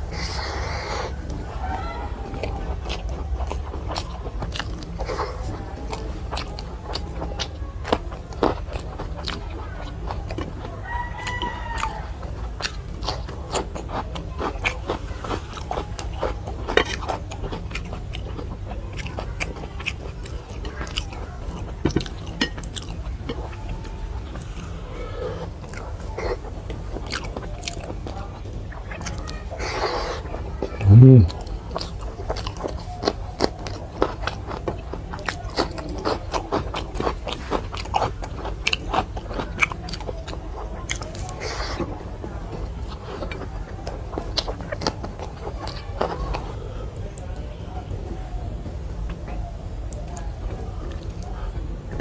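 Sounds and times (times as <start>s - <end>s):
person chewing food: 0.0s - 47.3s
low steady hum: 30.6s - 31.5s.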